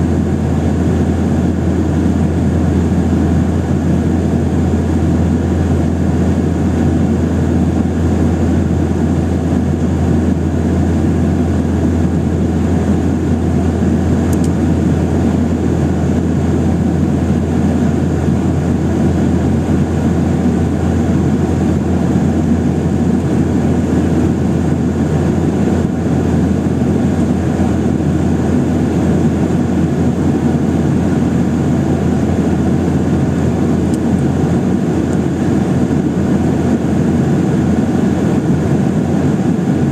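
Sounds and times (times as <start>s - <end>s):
constant low hum: 0.0s - 39.9s
jet engine drone in cabin: 0.0s - 39.9s.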